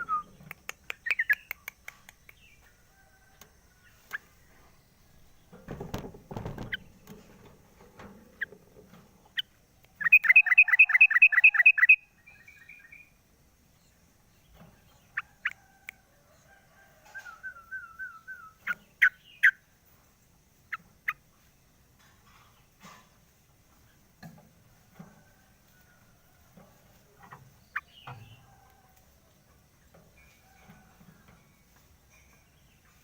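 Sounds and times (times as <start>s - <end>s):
rippling bird trill: 10.0s - 13.0s.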